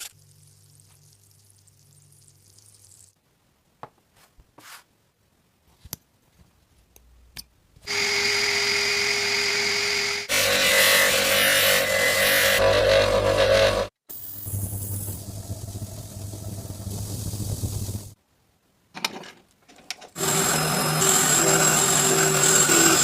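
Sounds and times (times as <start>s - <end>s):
power tool whining: 7.9s - 13.9s, 20.2s - 23.0s.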